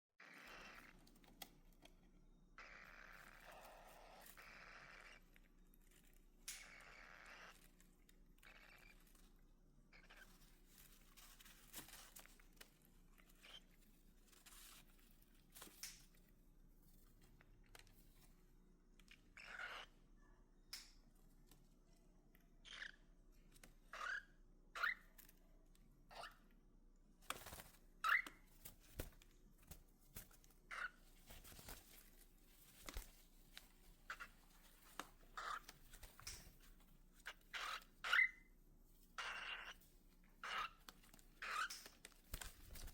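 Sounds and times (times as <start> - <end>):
cockatiels calling: 0.2 - 1.1, 2.6 - 5.4, 6.5 - 9.2, 9.9 - 10.6, 13.2 - 13.7, 19.1 - 20.0, 22.6 - 23.1, 23.9 - 25.2, 26.1 - 26.4, 27.5 - 29.1, 30.7 - 31.8, 34.0 - 38.5, 39.2 - 39.8, 40.4 - 42.9
faint scratching and clicking: 7.5 - 19.4, 27.2 - 42.9.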